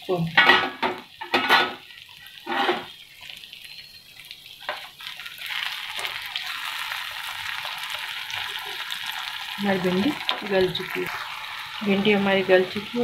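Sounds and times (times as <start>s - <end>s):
okra sizzling in frying pan: 0.0s - 13.0s.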